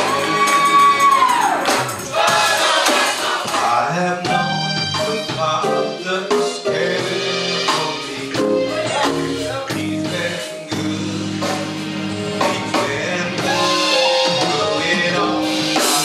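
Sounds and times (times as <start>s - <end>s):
person singing: 0.0s - 1.9s, 3.6s - 16.0s
drums: 0.0s - 16.0s
guitar: 4.2s - 16.0s.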